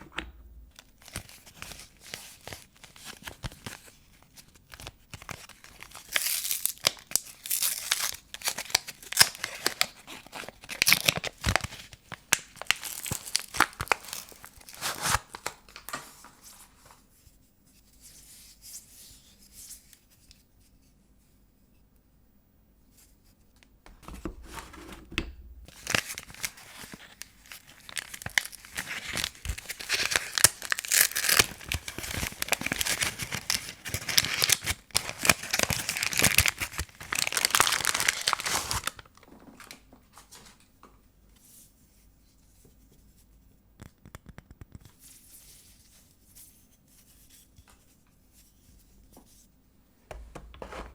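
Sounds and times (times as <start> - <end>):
paper wrappers tearing and crinkling: 0.8 - 4.0, 4.7 - 17.0, 25.6 - 39.1.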